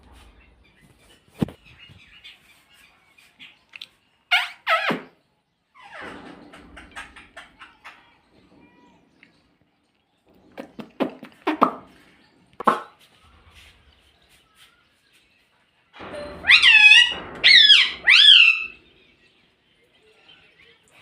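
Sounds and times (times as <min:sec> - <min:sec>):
parakeet chattering and calling: 0:16.4 - 0:18.7.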